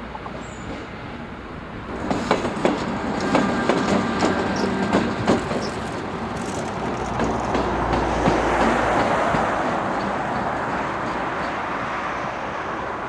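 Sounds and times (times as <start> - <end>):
train rolling along rails: 0.0 - 13.0
clanks and knocks: 2.0 - 11.6.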